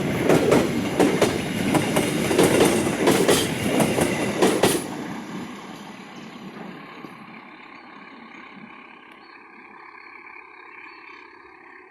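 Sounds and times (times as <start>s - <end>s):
passenger train rumbling: 0.0s - 11.9s.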